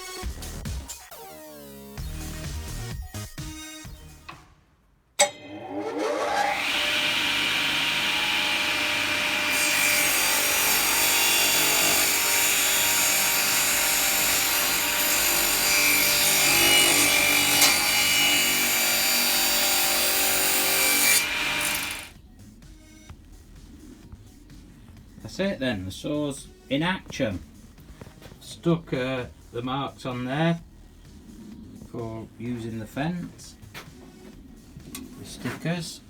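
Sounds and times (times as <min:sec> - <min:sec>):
saw blade cutting wood: 0:05.2 - 0:22.1
table saw motor whining: 0:05.2 - 0:22.1.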